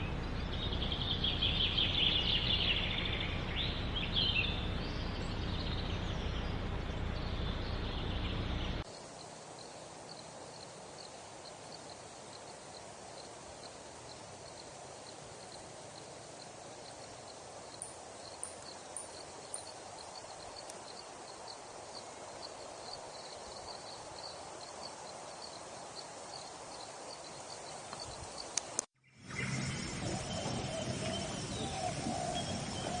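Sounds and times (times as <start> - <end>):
birds calling: 0.0 - 8.9, 27.6 - 33.0
steady hiss: 0.0 - 33.0.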